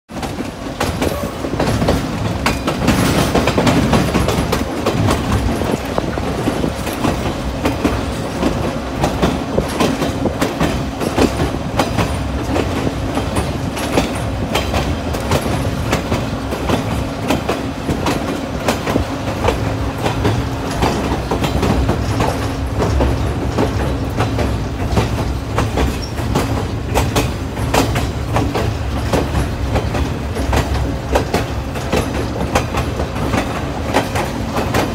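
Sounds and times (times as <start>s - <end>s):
train rumble: 0.1s - 34.9s
wheels clicking on rails: 0.1s - 34.9s.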